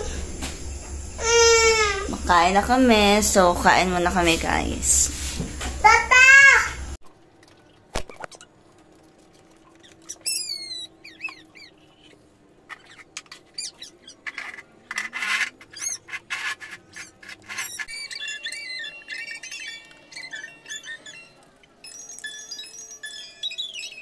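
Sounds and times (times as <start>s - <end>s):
small birds chirping: 9.4s - 14.6s, 15.6s - 16.2s, 16.9s - 24.0s.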